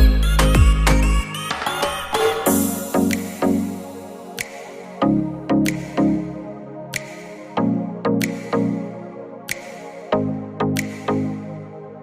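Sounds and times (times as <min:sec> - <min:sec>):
electronic bass and drum beat: 0:00.0 - 0:04.5.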